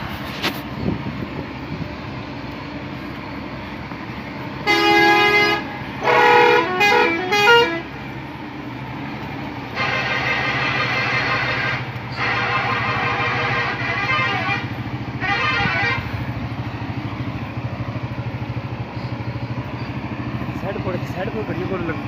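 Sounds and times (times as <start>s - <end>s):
engine running: 0.0s - 22.0s
multi-note musical horn: 4.6s - 7.9s, 9.7s - 16.2s
truck horn blast: 4.6s - 8.0s, 9.7s - 16.4s.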